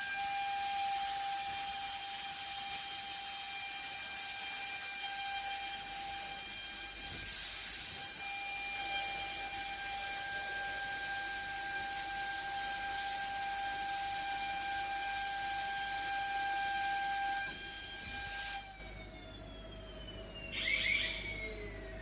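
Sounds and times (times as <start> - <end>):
router spindle whining: 18.7 - 22.0.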